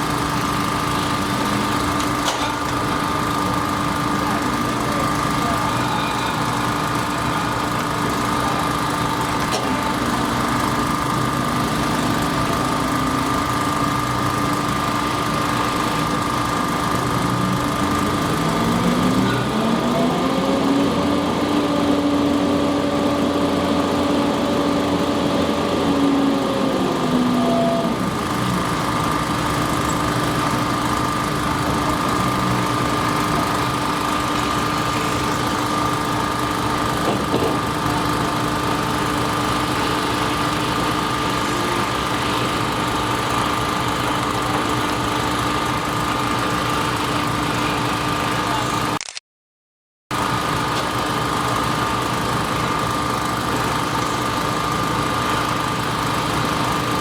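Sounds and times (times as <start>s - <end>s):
machine engine droning: 0.0s - 48.9s, 50.1s - 57.0s
second motor note rising: 16.1s - 28.5s.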